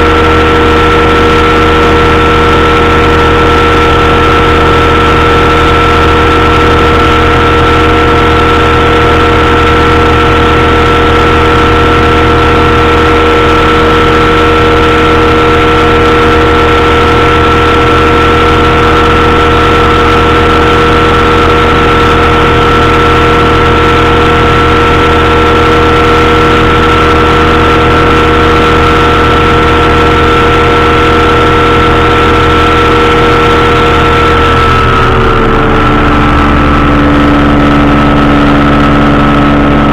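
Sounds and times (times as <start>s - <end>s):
engine and propeller running: 0.0s - 39.9s.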